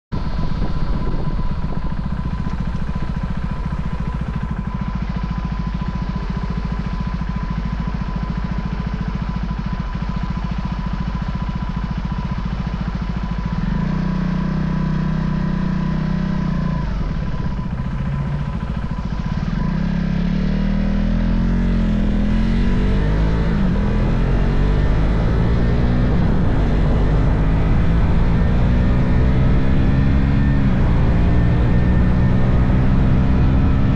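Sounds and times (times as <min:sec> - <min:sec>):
motorcycle engine running: 0:00.1 - 0:33.9.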